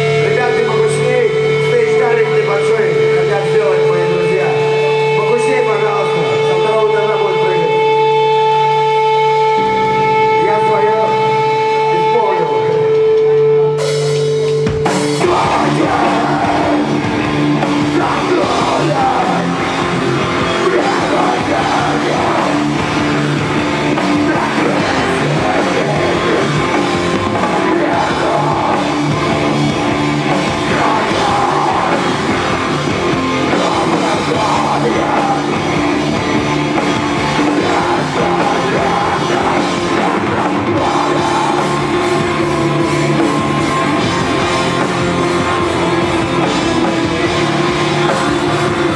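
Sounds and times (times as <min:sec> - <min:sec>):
drum kit: 0:00.0 - 0:48.9
rock band playing live: 0:00.0 - 0:48.9.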